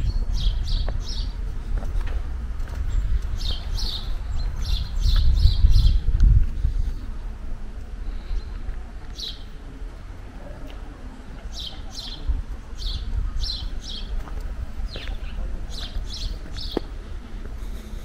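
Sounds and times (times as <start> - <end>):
small birds chirping: 0.0 - 1.5, 2.6 - 6.1, 8.1 - 9.6, 11.2 - 17.0
steady low rumble: 0.0 - 18.0.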